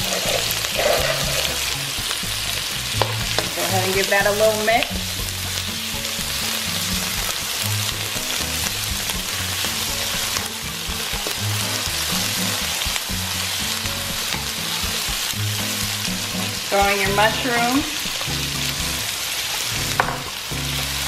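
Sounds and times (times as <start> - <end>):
spatula stirring in wok: 0.0 - 20.0
food sizzling in hot oil: 0.0 - 21.0.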